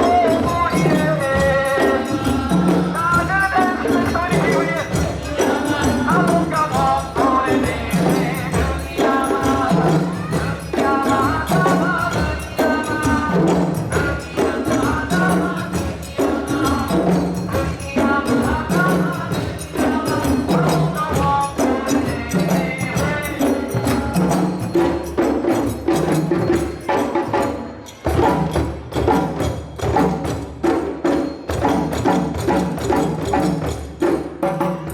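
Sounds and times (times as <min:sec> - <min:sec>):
drums and hand percussion: 0:00.0 - 0:34.9
voices singing: 0:00.0 - 0:34.9.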